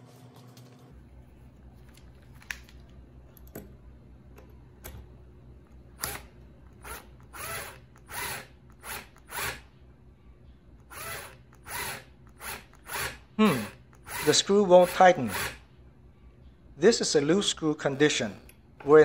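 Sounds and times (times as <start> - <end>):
cordless drill whirring: 6.0 - 9.6, 10.8 - 15.6.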